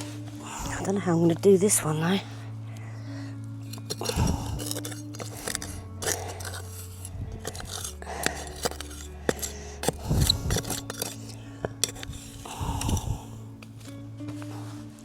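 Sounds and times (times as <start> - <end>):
clinks of screws and hand tools: 3.6 - 13.0.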